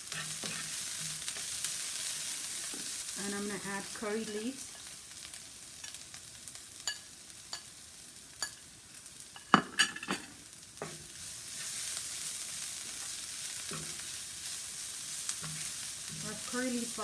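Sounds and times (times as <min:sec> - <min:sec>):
utensil scraping a frying pan: 0:00.0 - 0:02.7, 0:09.4 - 0:17.0
food sizzling in a pan: 0:00.0 - 0:17.0.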